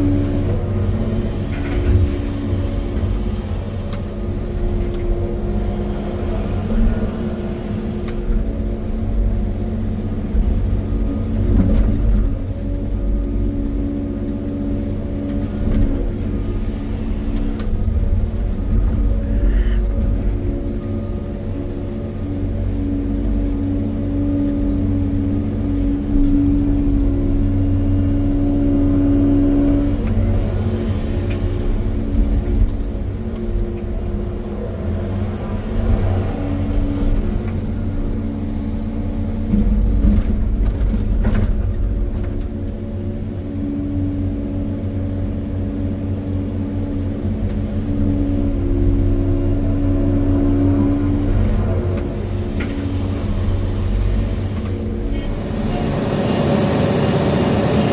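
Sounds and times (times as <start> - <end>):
excavator diesel engine droning: 0.0 - 57.9.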